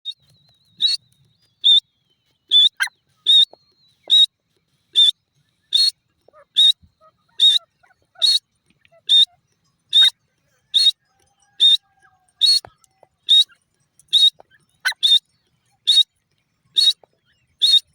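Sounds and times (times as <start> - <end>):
bird calling high-pitched notes: 2.5 - 4.3, 5.7 - 15.2, 16.8 - 17.9.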